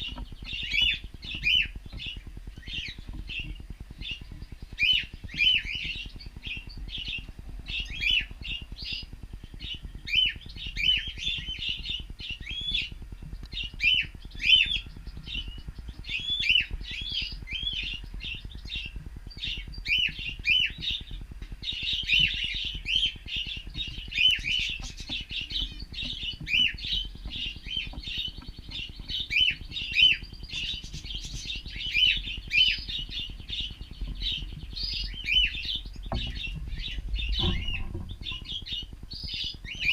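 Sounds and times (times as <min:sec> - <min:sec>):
cockatiels chirping: 0:00.0 - 0:39.9.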